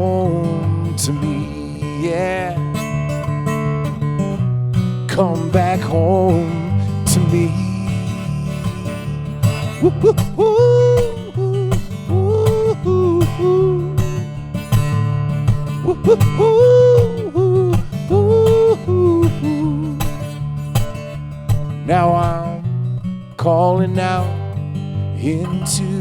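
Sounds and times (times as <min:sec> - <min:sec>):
person singing wordless melody: 0:00.0 - 0:02.8, 0:05.1 - 0:14.2, 0:15.7 - 0:20.3, 0:21.8 - 0:22.7
acoustic guitar strumming: 0:00.0 - 0:26.0.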